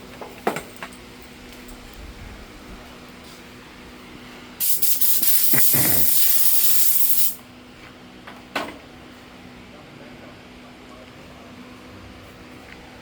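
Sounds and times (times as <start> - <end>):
aerosol can spraying: 4.6 - 7.4.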